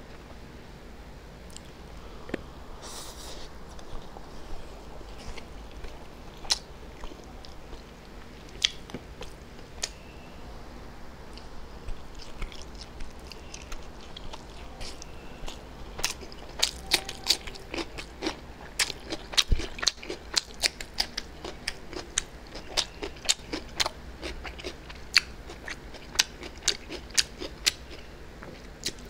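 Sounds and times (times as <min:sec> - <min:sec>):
chewing with wet clicks and crunches: 0:05.1 - 0:10.0, 0:11.3 - 0:29.0.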